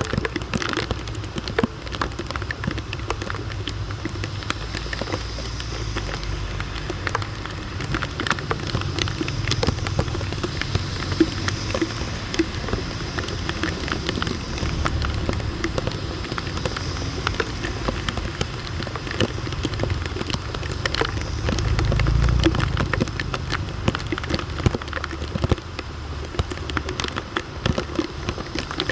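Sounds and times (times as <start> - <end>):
rain on hard street: 0.0 - 28.9
low rumble: 4.2 - 25.4.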